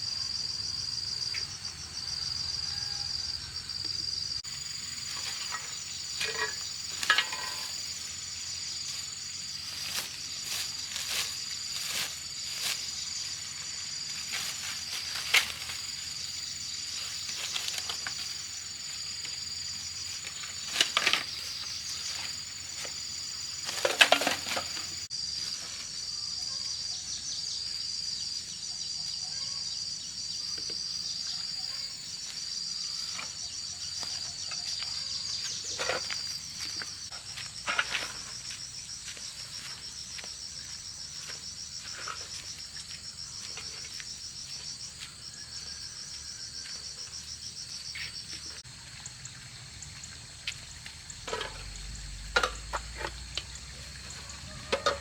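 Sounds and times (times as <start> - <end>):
insects chirping: 0.0 - 55.0
rustles and knocks: 5.0 - 8.1, 20.1 - 23.0, 23.6 - 25.1.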